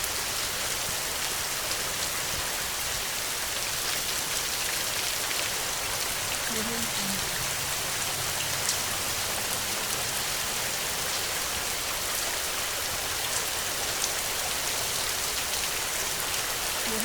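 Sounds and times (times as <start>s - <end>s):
heavy rain falling: 0.0s - 17.0s
raindrops ticking: 4.9s - 14.2s.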